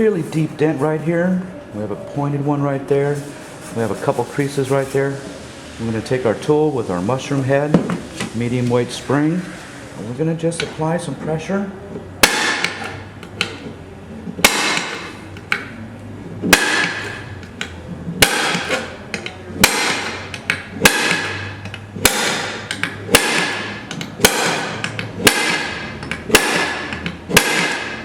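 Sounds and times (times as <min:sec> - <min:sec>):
dent tool striking metal plate: 0:12.2 - 0:13.6, 0:14.4 - 0:15.7, 0:16.4 - 0:17.3, 0:18.2 - 0:28.0.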